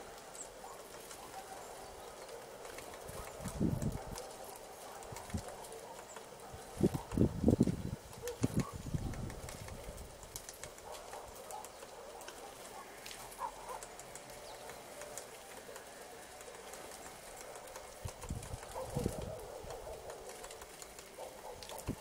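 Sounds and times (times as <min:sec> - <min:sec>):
light ticks: 0:08.3 - 0:22.0.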